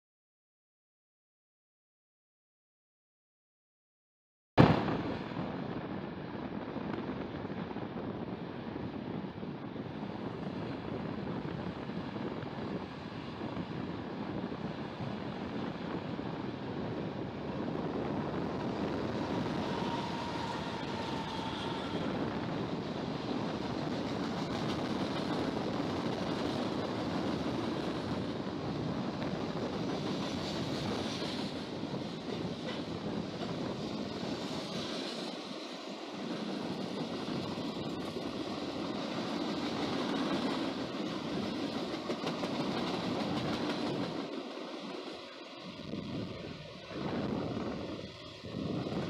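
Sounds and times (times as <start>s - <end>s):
freight train rumbling on rails: 4.8s - 49.0s.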